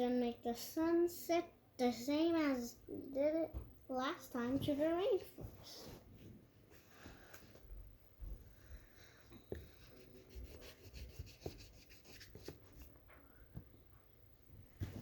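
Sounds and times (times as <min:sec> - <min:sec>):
colouring tool scratching paper: 0:09.5 - 0:12.9.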